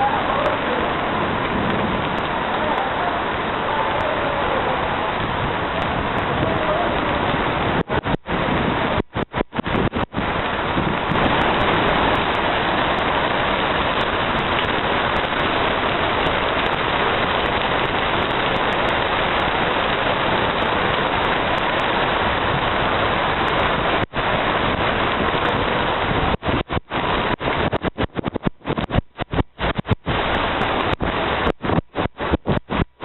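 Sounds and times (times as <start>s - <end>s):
steady rain: 0.0s - 33.0s.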